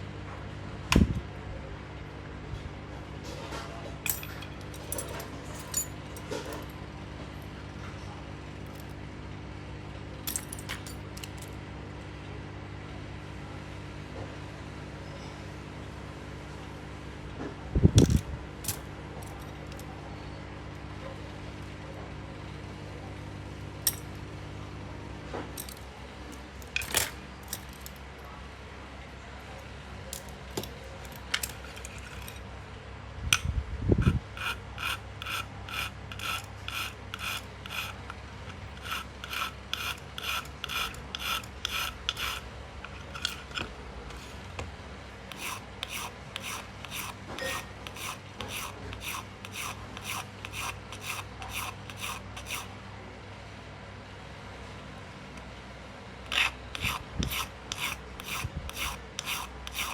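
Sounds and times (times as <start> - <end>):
loud scrape: 31.1 - 32.4, 34.0 - 43.6, 45.3 - 52.7, 56.3 - 59.9
hand scraping strokes: 34.0 - 44.4, 45.3 - 52.7, 56.3 - 59.9.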